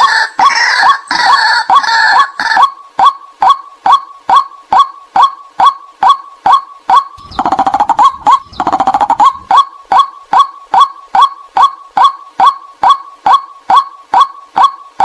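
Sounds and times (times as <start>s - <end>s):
bird kwak calls: 0.4s - 15.0s
bird rapid chattering calls: 2.5s - 14.8s.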